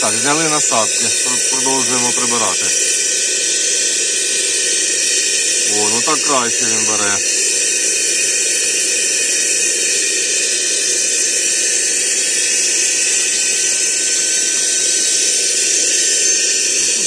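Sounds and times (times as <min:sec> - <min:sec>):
vacuum cleaner running: 0:00.0 - 0:07.9.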